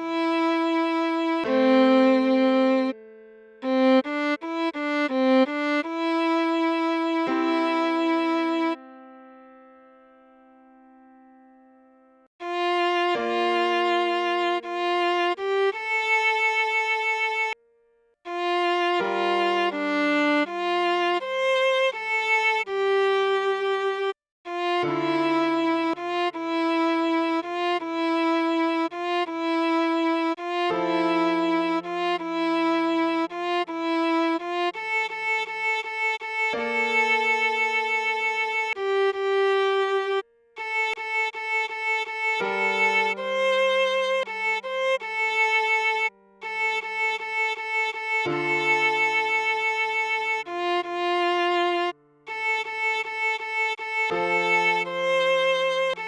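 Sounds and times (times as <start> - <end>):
viola slow melody: 0.0 - 56.0.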